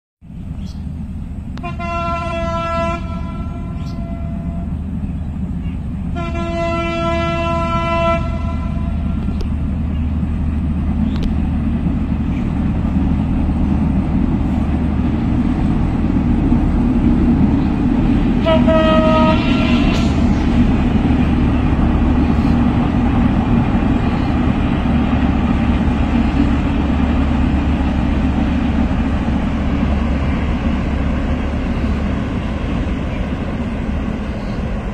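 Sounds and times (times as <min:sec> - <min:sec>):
train rumbling past: 0:00.2 - 0:34.9
locomotive horn blast: 0:01.6 - 0:04.8, 0:06.1 - 0:09.4, 0:18.3 - 0:20.6.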